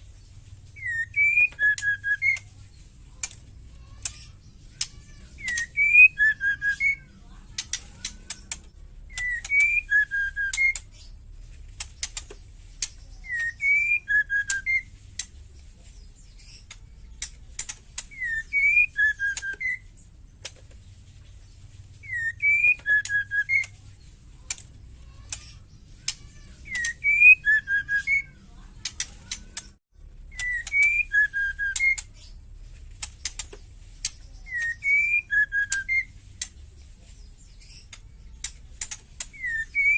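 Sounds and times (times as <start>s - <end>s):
bird whistled call: 0.8s - 2.5s, 4.8s - 7.1s, 9.1s - 10.9s, 13.2s - 14.9s, 18.1s - 20.0s, 22.0s - 23.7s, 26.6s - 28.4s, 29.6s - 32.1s, 34.4s - 36.2s, 39.3s - 39.9s
fast ticking bird clicks: 3.2s - 10.9s, 11.7s - 15.4s, 16.6s - 20.7s, 24.4s - 32.2s, 32.9s - 36.6s, 37.8s - 39.9s.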